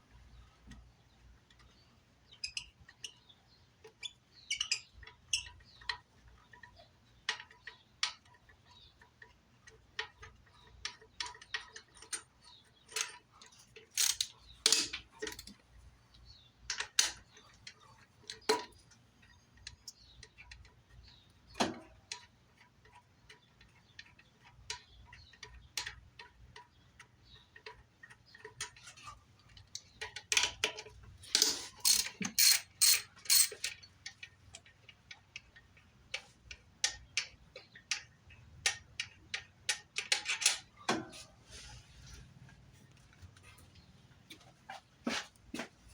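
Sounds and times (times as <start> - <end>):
hand tools clicking and clinking: 12.9 - 15.5, 30.0 - 34.7.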